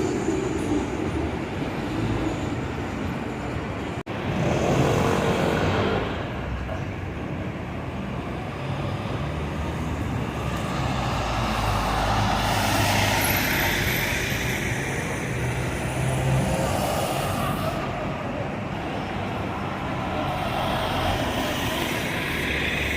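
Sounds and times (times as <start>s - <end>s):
street traffic hum: 0.0s - 22.9s
large vehicle passing close: 8.5s - 22.9s.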